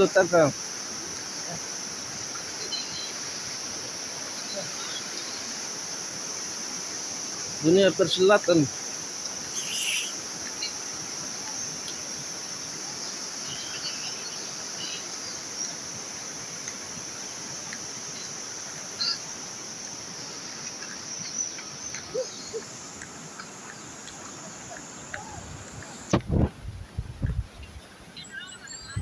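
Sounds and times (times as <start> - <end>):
high insect drone: 0.0 - 26.4
rain hiss: 0.0 - 29.0
bird chirps: 9.5 - 10.8, 13.4 - 15.8, 18.1 - 19.3, 20.8 - 22.8.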